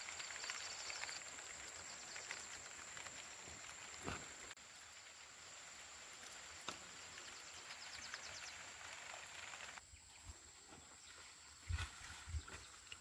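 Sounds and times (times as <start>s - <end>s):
light rain hiss: 0.0s - 9.8s
small chirps: 0.0s - 9.8s.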